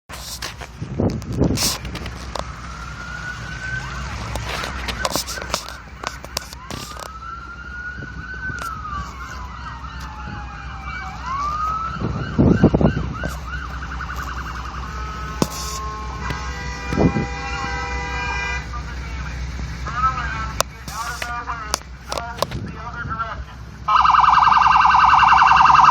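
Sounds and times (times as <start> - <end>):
siren wailing: 0.8 - 25.9
siren yelping: 1.9 - 21.4, 23.9 - 25.9
vehicle horn: 14.9 - 19.4.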